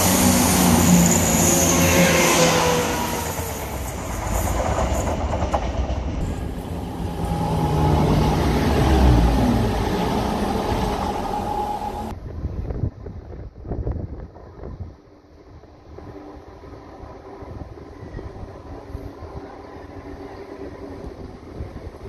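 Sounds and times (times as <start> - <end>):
diesel train engines running: 0.0 - 12.1
wheel and rail noise: 0.0 - 12.2.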